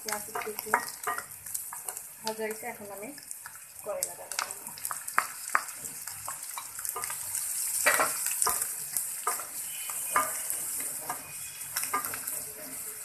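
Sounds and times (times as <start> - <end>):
food sizzling in hot oil: 0.0 - 13.0
wooden spatula scraping a pan: 5.5 - 13.0.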